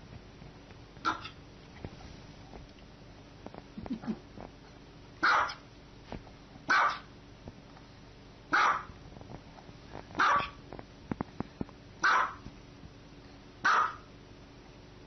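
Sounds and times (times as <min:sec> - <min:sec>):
dog barking: 0:01.0 - 0:01.4, 0:05.2 - 0:05.6, 0:06.7 - 0:07.1, 0:08.5 - 0:09.0, 0:10.2 - 0:10.6, 0:12.0 - 0:12.4, 0:13.6 - 0:14.1.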